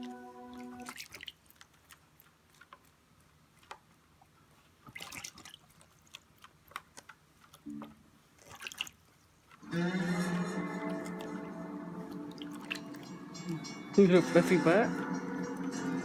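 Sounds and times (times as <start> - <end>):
water splashing and dripping: 0.0 - 2.9, 4.8 - 9.6, 10.4 - 15.9.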